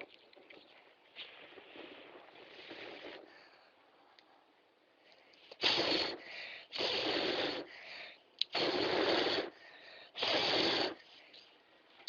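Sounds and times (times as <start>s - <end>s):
person blowing out breath: 5.5s - 11.1s.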